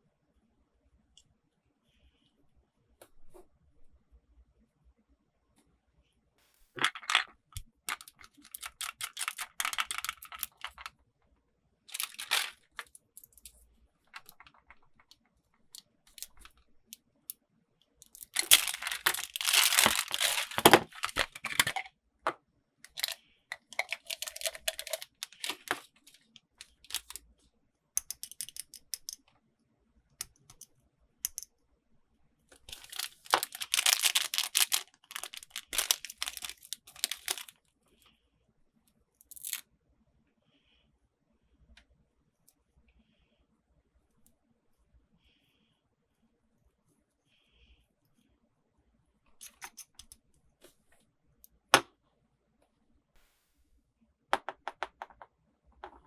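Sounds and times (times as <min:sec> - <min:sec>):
packaging crinkling and tearing: 0:07.9 - 0:10.9, 0:11.9 - 0:12.9, 0:18.2 - 0:21.8, 0:23.8 - 0:27.2, 0:32.6 - 0:37.5
small clicks: 0:31.3 - 0:31.5.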